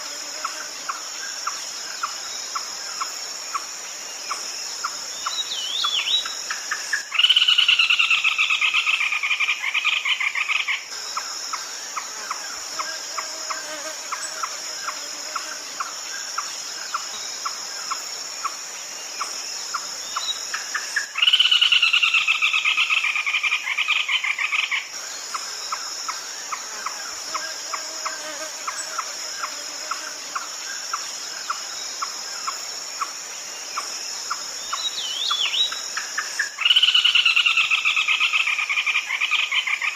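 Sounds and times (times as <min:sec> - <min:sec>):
high insect hum: 0:00.0 - 0:39.9.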